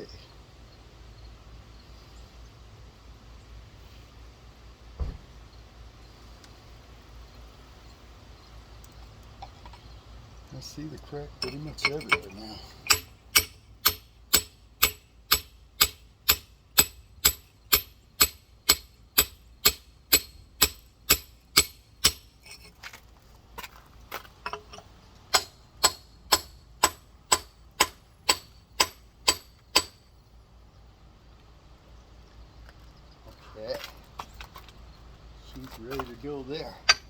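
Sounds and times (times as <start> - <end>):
hammer striking stone: 12.9 - 22.3, 25.3 - 30.0.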